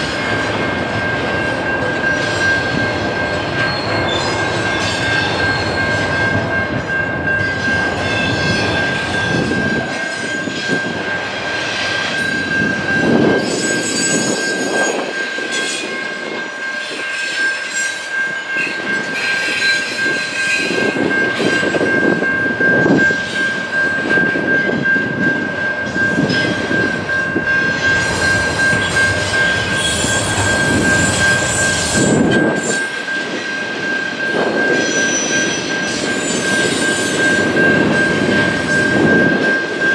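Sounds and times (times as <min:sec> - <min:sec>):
high-pitched wheel squeal: 0:13.3 - 0:16.0, 0:16.8 - 0:21.7, 0:27.8 - 0:33.0, 0:34.6 - 0:37.8
train wheels clattering over rails: 0:25.8 - 0:33.6.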